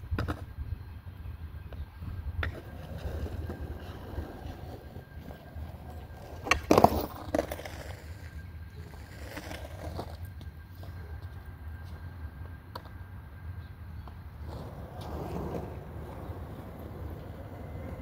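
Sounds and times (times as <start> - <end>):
skateboard wheels rolling: 0.0 - 18.0
skateboard clacking: 2.4 - 11.6, 14.0 - 18.0.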